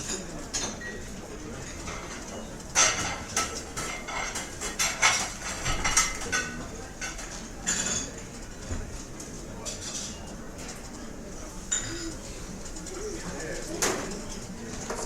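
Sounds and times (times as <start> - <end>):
cutlery clinking on plates: 0.0 - 8.4, 11.7 - 12.3
murmur of diners: 0.0 - 15.0.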